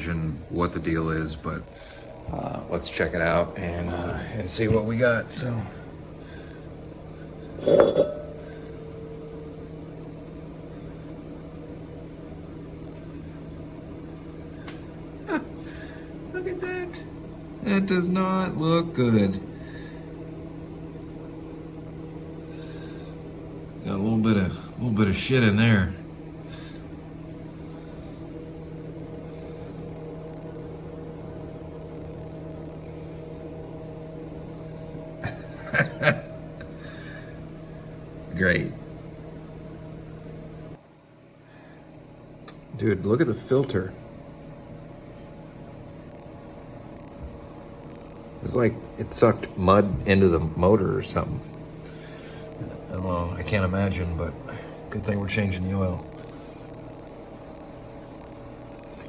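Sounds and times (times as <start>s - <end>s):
steady low hum: 0.0s - 59.0s
glass jar clinking: 7.6s - 9.6s.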